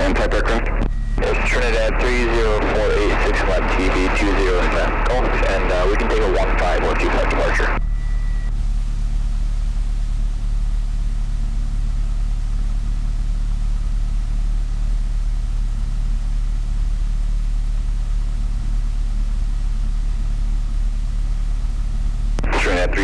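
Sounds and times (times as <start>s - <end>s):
airplane engine idling: 0.0s - 11.7s.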